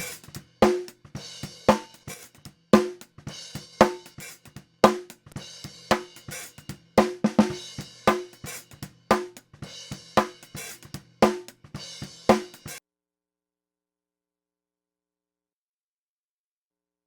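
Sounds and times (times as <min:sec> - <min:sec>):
drum kit groove: 0:00.0 - 0:12.8.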